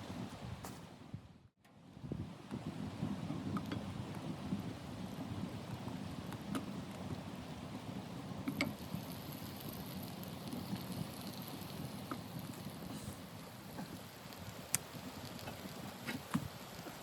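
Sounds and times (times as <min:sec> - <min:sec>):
blizzard wind rushing: 0:00.0 - 0:17.0
firewood crackling: 0:02.6 - 0:17.0
thin high hiss: 0:08.6 - 0:17.0.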